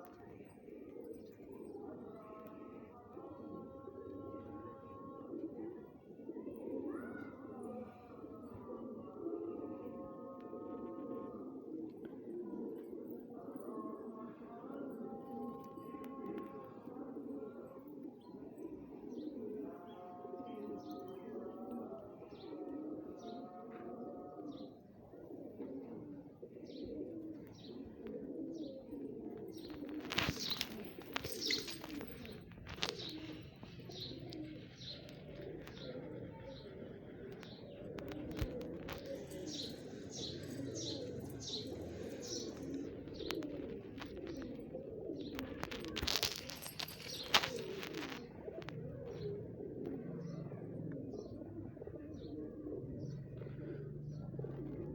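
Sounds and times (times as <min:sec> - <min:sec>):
pigeons cooing: 0:00.0 - 0:54.9.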